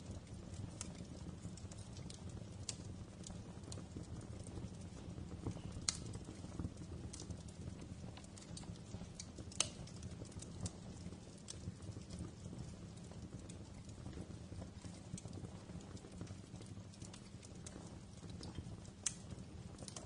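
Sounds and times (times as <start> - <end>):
low rumble of flames: 0.0 - 20.0
wood fire popping and snapping: 0.0 - 20.0.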